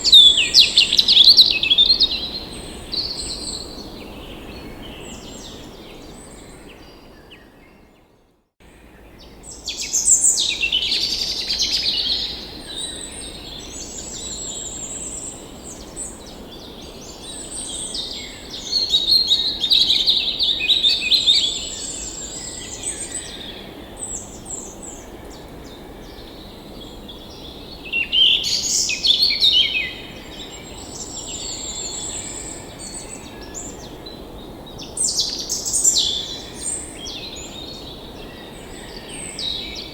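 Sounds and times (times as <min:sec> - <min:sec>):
steady outdoor hiss: 0:00.0 - 0:07.8, 0:08.6 - 0:39.9
songbirds chirping and trilling: 0:08.7 - 0:39.9.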